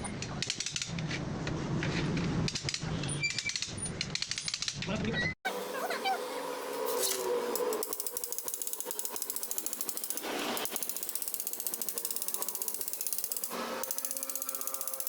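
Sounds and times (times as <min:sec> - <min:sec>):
rapid mechanical ratchet clicking: 0:07.6 - 0:15.0.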